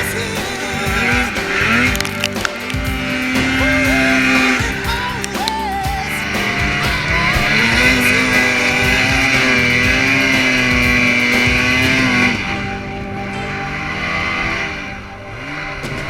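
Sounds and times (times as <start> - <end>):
music: 0.0 - 16.0
snowmobile engine revving: 0.0 - 16.0.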